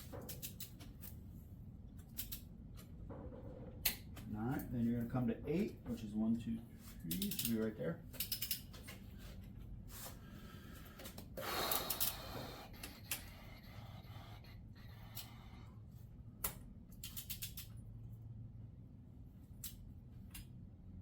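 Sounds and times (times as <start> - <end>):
torque wrench clicks and rattles: 0.2 - 1.1, 2.0 - 2.5, 7.1 - 8.8, 11.7 - 13.3, 16.4 - 17.8.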